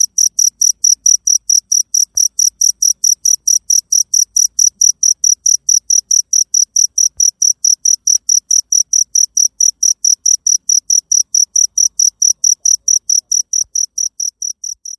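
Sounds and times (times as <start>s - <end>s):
cricket chirping: 0.0s - 14.9s.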